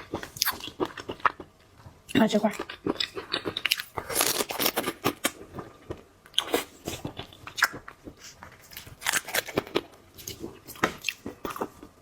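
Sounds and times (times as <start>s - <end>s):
biting and chewing seafood: 2.6s - 12.0s.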